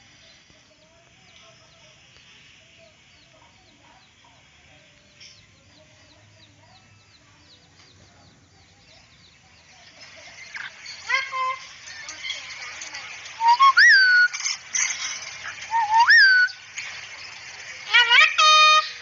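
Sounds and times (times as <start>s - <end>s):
high bird chirps: 13.3s - 19.0s.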